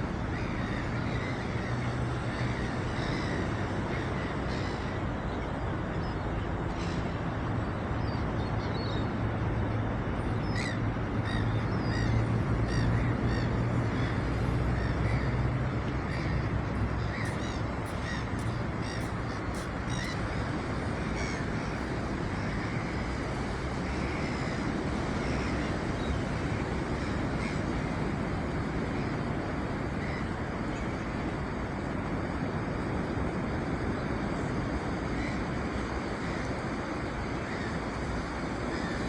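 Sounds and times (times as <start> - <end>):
sea waves washing: 9.2 - 39.0
birds calling: 10.4 - 23.0.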